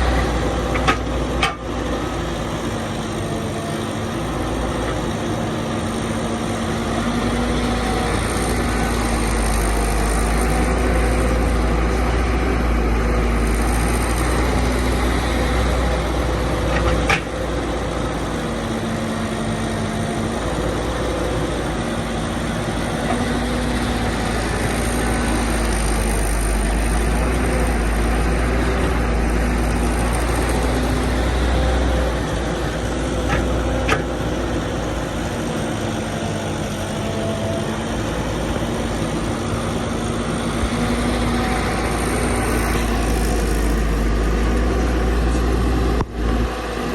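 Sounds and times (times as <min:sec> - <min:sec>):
excavator engine running under load: 0:00.0 - 0:46.9.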